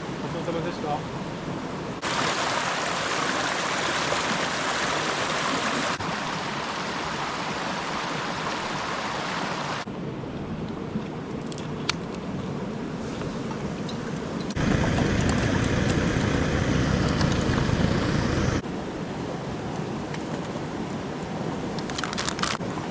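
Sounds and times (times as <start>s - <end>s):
stream water rushing: 0.0s - 9.9s.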